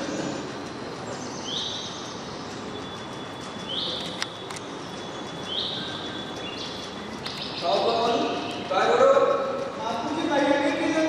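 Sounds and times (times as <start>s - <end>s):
bird chirping: 1.1s - 8.9s
sharp click: 3.6s - 4.8s.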